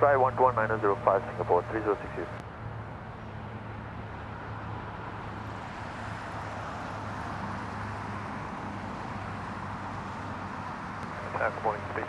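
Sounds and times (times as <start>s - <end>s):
jet engines roaring: 0.0s - 2.4s, 11.0s - 12.0s.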